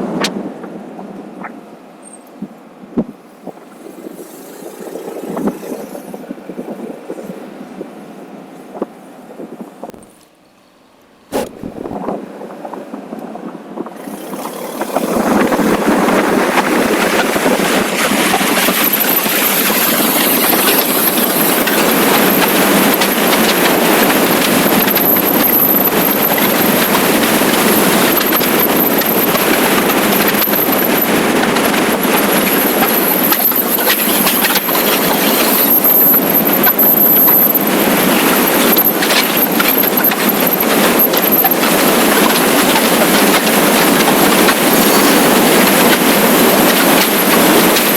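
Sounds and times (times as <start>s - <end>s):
wind and road noise: 0.0s - 47.9s.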